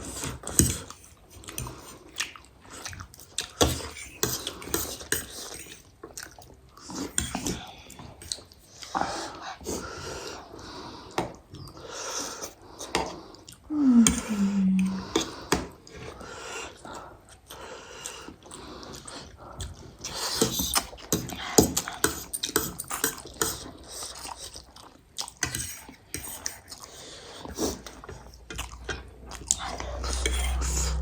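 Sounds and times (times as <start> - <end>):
chewing and slurping noodles: 0.0 - 13.7, 15.0 - 31.0
person humming: 13.7 - 15.4.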